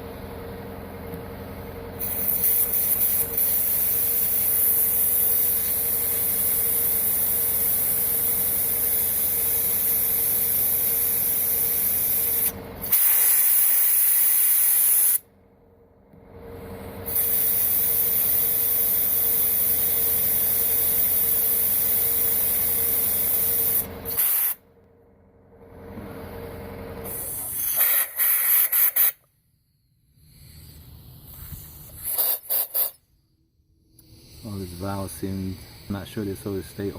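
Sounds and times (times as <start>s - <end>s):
motor hum: 0.0s - 27.4s
blower blasting air: 1.9s - 15.3s, 16.5s - 24.7s, 25.8s - 29.3s, 30.1s - 33.3s.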